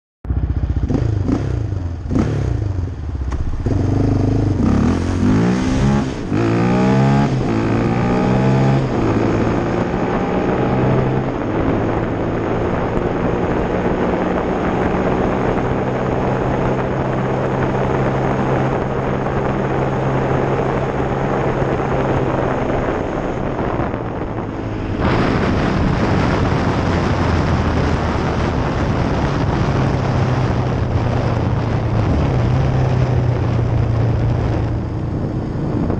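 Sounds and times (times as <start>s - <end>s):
atv engine accelerating: 0.3s - 35.9s
rushing noise: 0.8s - 12.2s, 22.5s - 29.6s.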